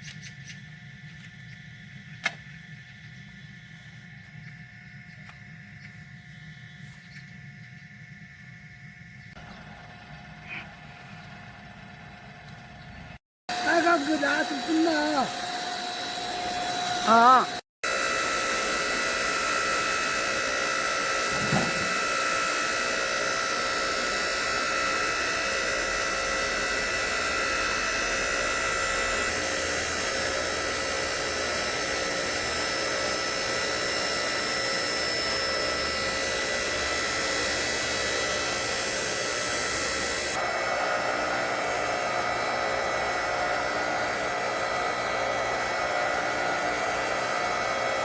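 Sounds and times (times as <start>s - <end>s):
log splitter motor whirring: 0.1s - 48.0s
brief knock: 21.3s - 21.9s.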